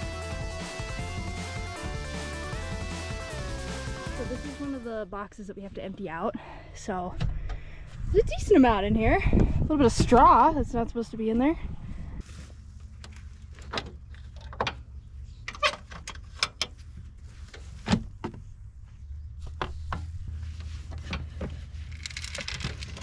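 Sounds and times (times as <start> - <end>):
clunks and clicks of seed boxes: 13.0 - 16.8, 20.9 - 23.0.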